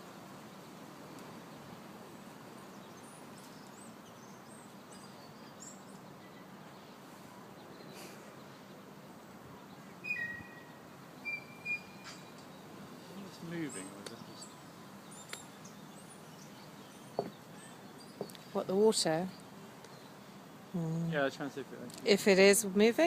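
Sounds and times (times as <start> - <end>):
outdoor background noise: 0.0 - 23.0
faint bird twitters: 9.8 - 18.6
high-pitched bird chirps: 10.0 - 12.3.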